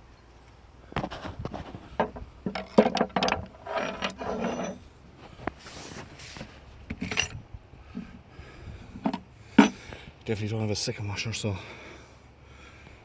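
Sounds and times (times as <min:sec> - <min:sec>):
metal hardware clinking: 0:09.1 - 0:09.8.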